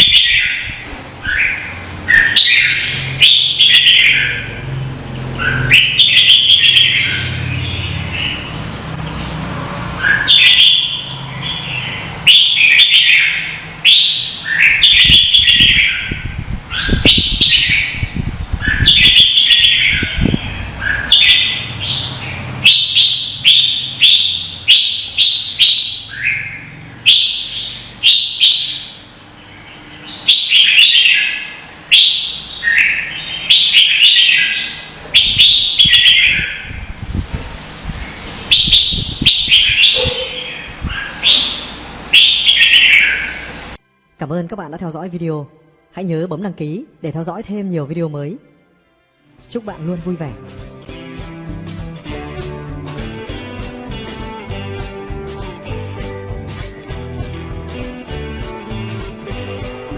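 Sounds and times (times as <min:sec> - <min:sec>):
bird singing warbling phrases: 0:00.0 - 0:09.4, 0:10.0 - 0:36.9, 0:38.1 - 0:43.6.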